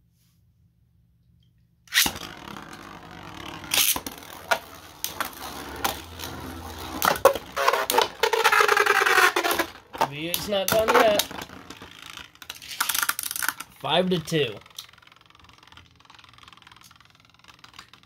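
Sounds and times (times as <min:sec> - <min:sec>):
spinning tops clashing: 0:01.9 - 0:15.7
plastic spinning tops clattering: 0:01.9 - 0:18.0
spinning tops rattling: 0:01.9 - 0:18.0.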